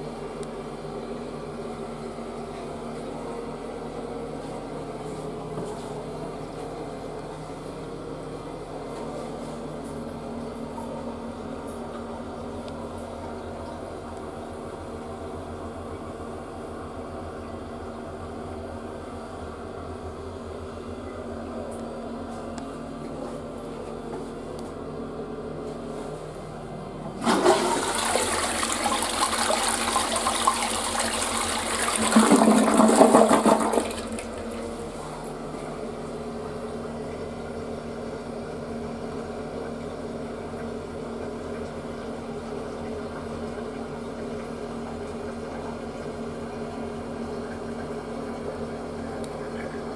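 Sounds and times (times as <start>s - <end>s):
toilet flushing: 27.0s - 49.9s.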